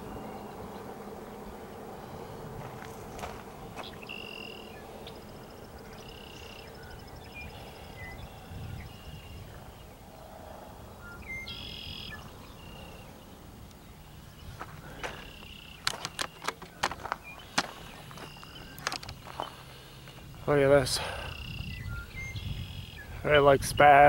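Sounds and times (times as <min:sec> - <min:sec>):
birds calling buzzy phrases: 0:00.0 - 0:24.0
low steady noise: 0:00.0 - 0:24.0
sharp clicks: 0:15.7 - 0:17.7.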